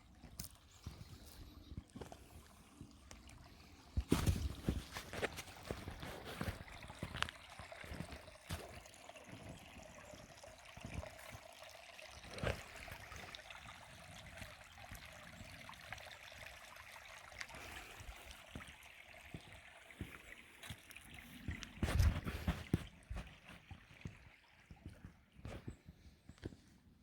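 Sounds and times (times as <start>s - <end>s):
creek water trickling: 0.0s - 27.0s.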